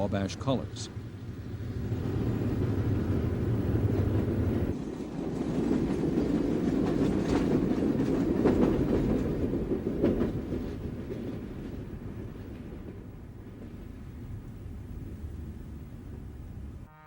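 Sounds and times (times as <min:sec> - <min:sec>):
freight train rolling past: 0:00.0 - 0:17.0
wheels clicking over rail joints: 0:01.8 - 0:15.1.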